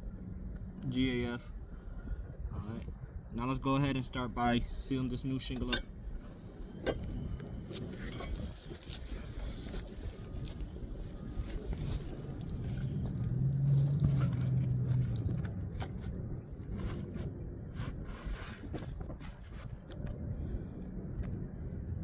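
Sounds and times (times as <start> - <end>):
passing vehicle engine hum: 11.5 - 17.7.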